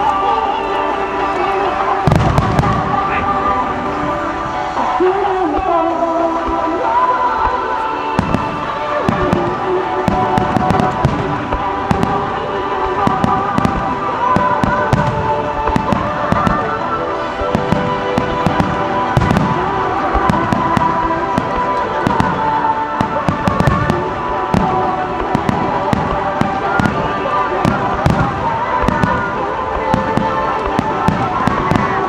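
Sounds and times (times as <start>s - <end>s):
fireworks bangs and crackles: 0.0s - 32.0s
music playing: 0.0s - 32.0s.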